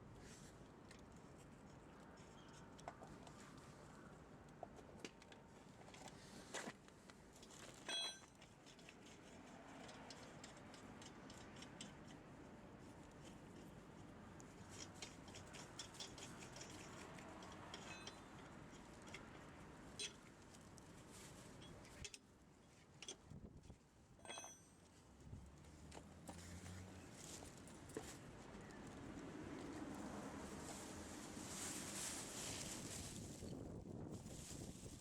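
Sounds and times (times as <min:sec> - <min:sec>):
ringing metal clink: 0:07.9 - 0:08.3, 0:24.2 - 0:24.8
metal tools clicking and clattering: 0:24.2 - 0:24.7.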